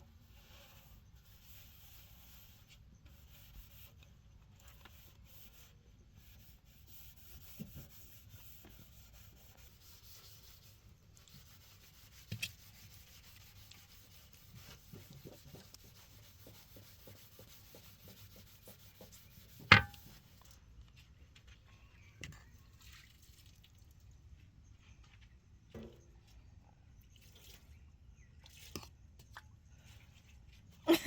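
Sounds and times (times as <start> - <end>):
faint rubbing: 6.8 - 20.4.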